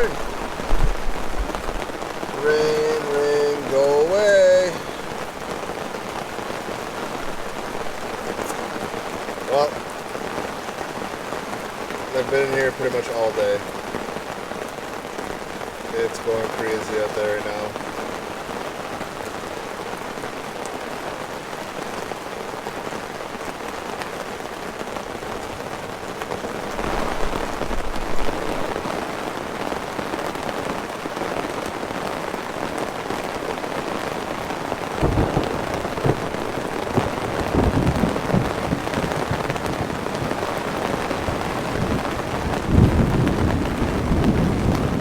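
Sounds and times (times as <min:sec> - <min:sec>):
thunder rumbling: 0:00.0 - 0:09.9, 0:26.6 - 0:29.1, 0:34.7 - 0:45.0
heavy rain drumming on a tent: 0:00.0 - 0:45.0.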